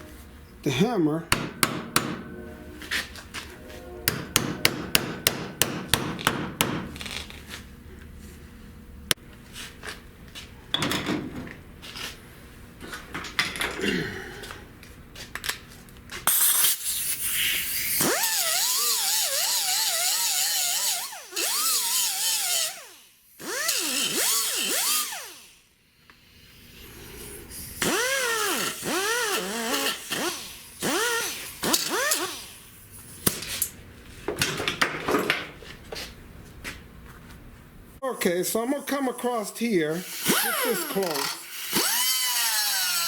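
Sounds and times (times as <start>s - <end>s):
power tool grinding sheet metal: 17.3s - 25.5s, 27.8s - 32.4s, 40.0s - 43.0s.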